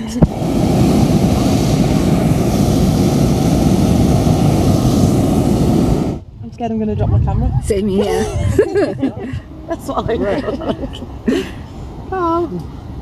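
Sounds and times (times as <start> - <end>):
propane burner blasting: 0.0 - 6.3.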